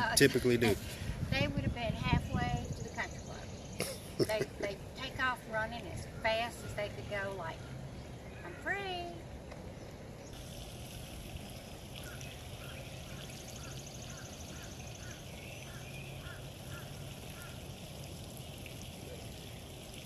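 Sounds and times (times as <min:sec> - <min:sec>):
steady hiss-like background: 0:00.0 - 0:20.0
bird repeating short call: 0:12.0 - 0:17.6.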